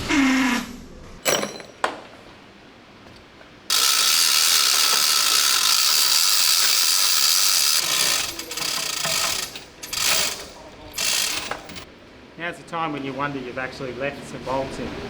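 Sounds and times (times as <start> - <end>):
ratchet wrench ratcheting: 3.7 - 11.9.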